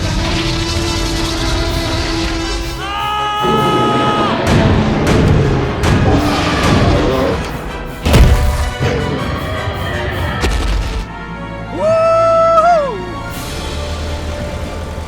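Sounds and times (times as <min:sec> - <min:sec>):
background music: 0:00.0 - 0:15.0
loud boom: 0:08.0 - 0:08.9.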